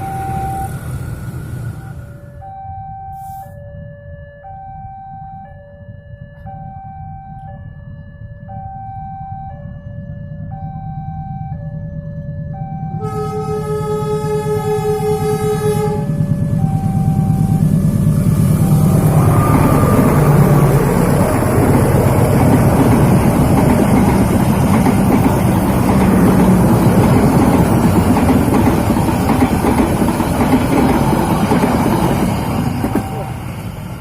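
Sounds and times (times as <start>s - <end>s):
train passing with rumble: 0.0s - 2.5s, 9.6s - 34.0s
train horn: 13.0s - 17.6s.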